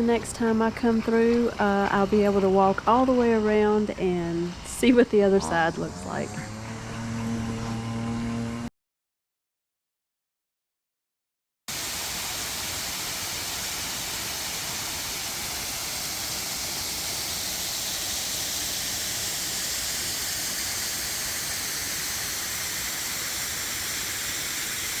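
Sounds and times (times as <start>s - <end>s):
waterfall rushing: 11.7s - 25.0s.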